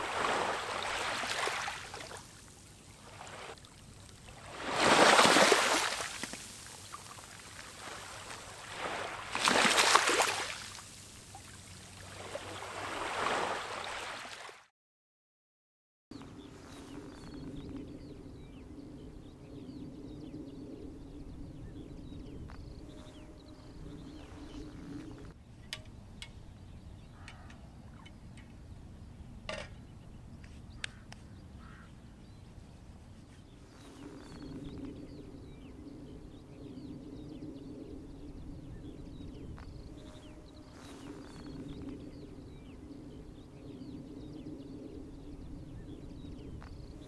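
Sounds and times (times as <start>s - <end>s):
birds calling: 16.2s - 47.0s
steady low hum: 16.2s - 47.0s.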